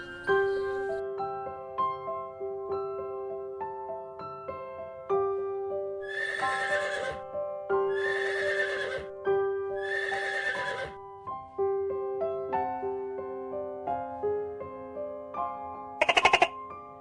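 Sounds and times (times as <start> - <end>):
soft piano music: 0.0 - 17.0
horse whinnying: 6.1 - 7.2, 7.9 - 9.1, 9.8 - 11.0.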